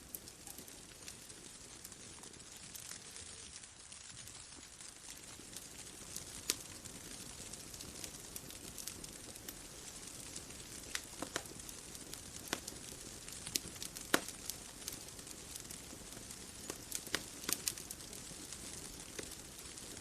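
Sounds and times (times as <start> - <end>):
bonfire crackling: 0.0 - 20.0.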